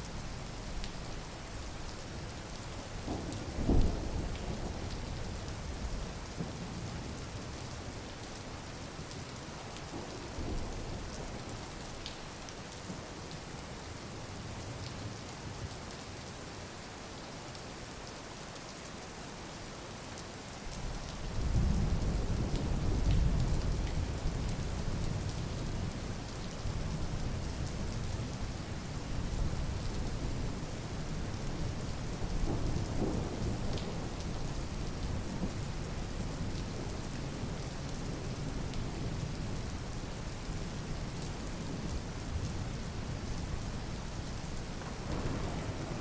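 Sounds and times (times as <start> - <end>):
rain falling: 0.0 - 46.0
low thunder rolling: 44.8 - 46.0.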